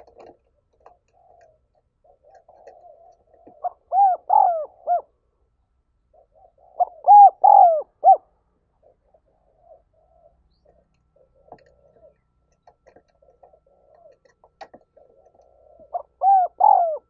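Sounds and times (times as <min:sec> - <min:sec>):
dove cooing: 0:00.0 - 0:05.4, 0:06.1 - 0:17.0.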